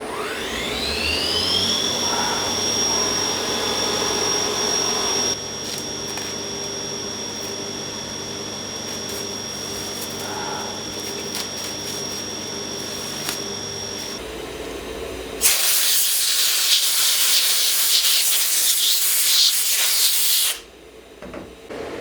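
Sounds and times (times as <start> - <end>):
milling spindle whining: 0.0 - 14.2.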